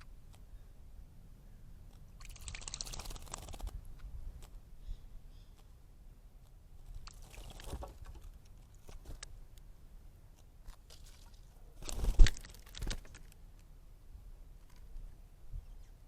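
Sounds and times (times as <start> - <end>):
bird splashing in water: 2.2 - 3.7, 7.0 - 8.0, 10.8 - 13.1.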